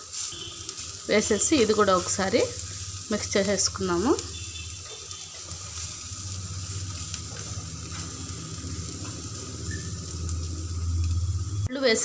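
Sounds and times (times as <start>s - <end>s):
wooden spatula stirring: 0.0s - 11.2s
vegetables sizzling in oil: 0.0s - 12.0s
steady low hum: 5.9s - 11.7s.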